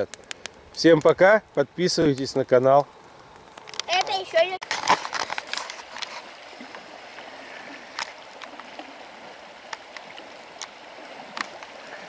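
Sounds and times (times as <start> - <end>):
river water rushing: 5.0 - 12.0.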